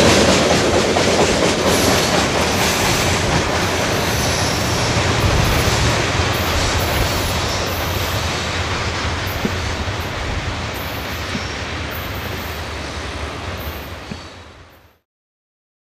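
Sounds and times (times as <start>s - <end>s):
freight train rumbling on rails: 0.0s - 15.0s.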